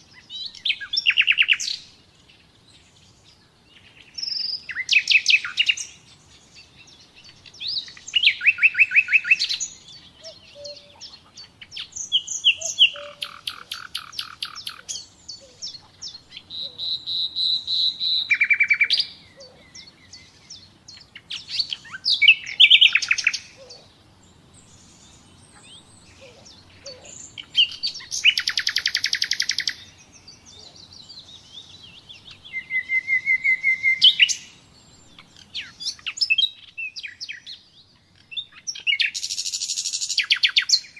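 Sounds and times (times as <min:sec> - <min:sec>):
nightingale singing: 0:00.0 - 0:40.9.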